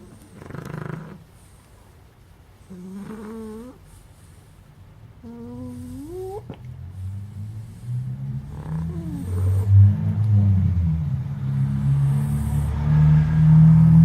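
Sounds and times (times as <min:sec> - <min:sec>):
puppy snoring: 0:00.0 - 0:01.6, 0:02.6 - 0:04.5, 0:05.2 - 0:14.0
low rumble: 0:06.5 - 0:14.0.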